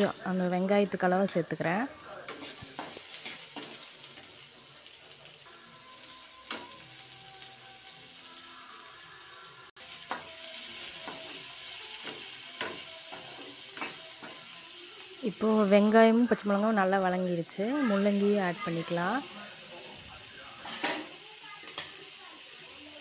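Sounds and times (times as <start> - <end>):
onions sizzling in oil: 0.0 - 23.0.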